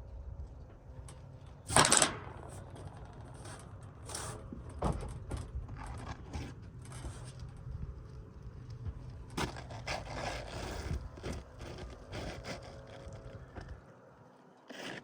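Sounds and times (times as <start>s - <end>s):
knocks and scrapes on shingle: 2.6s - 8.0s, 8.8s - 13.8s, 14.7s - 15.0s
shingle scraping: 9.1s - 13.8s, 14.7s - 15.0s.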